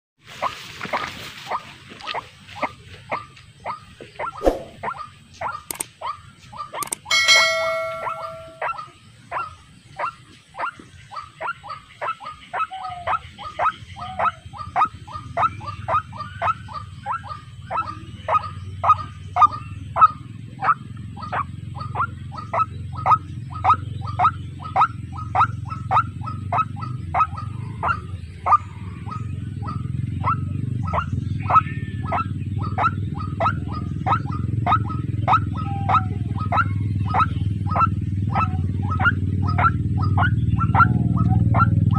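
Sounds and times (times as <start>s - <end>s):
waterhen calling: 6.6s - 8.9s.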